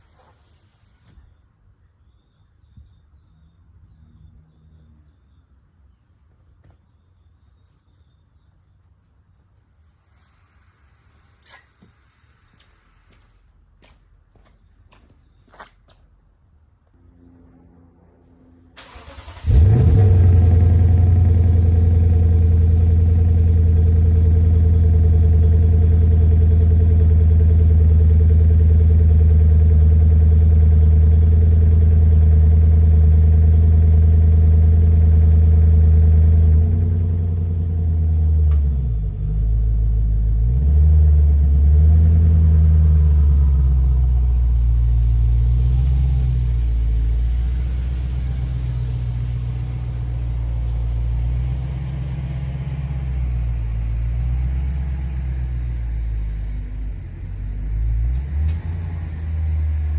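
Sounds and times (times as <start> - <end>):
car engine starting: 18.2 - 59.9
car engine idling: 18.7 - 59.9.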